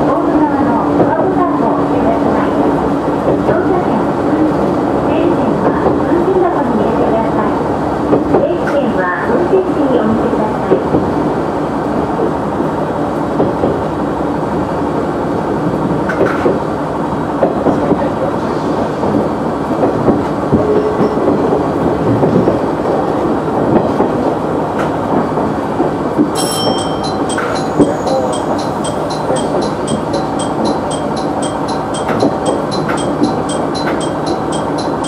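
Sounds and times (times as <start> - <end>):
railcar engine and wheels rumbling: 0.0 - 35.0
wheels clicking over rail joints: 23.6 - 35.0.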